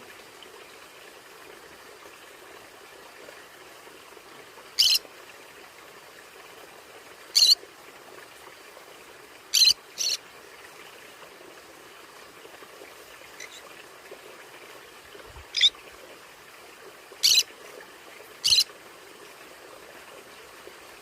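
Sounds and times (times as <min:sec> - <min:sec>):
low steady hiss: 0:00.0 - 0:21.0.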